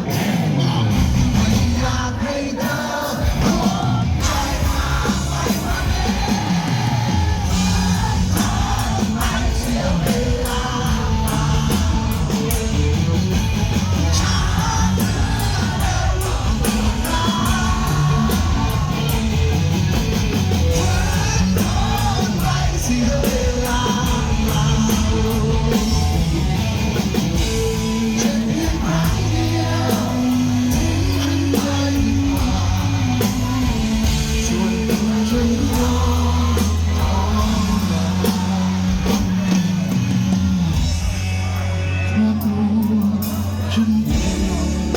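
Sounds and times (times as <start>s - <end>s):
drums hitting a steady beat: 0.0s - 44.9s
rock song with singer and band: 0.0s - 44.9s.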